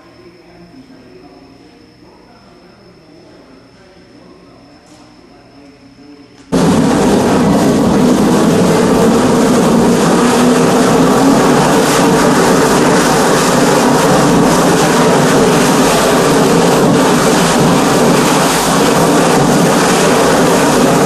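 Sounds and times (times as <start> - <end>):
mixing machine motor running: 6.5 - 21.0.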